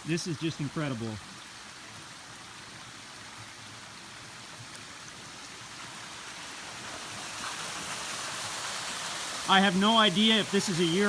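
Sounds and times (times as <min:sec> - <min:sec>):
waterfall rushing: 0:05.1 - 0:11.0.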